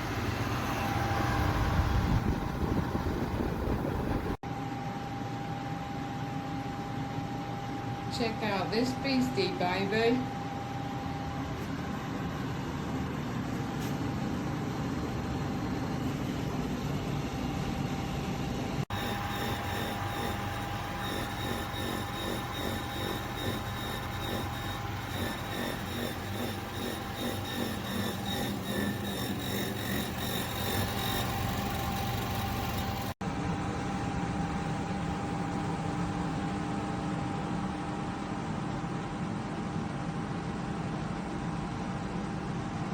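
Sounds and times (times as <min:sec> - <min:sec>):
air conditioner fan whirring: 0:00.0 - 0:42.9.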